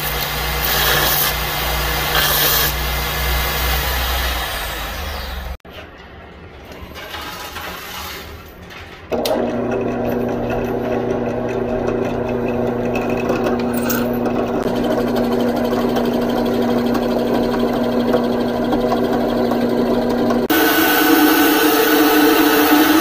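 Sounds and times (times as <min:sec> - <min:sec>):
drill press motor hum: 0:09.1 - 0:23.0.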